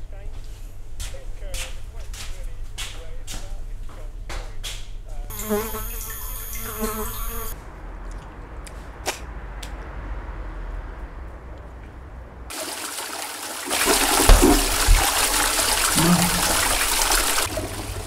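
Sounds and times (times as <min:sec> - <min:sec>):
toilet flushing: 0:12.5 - 0:18.0.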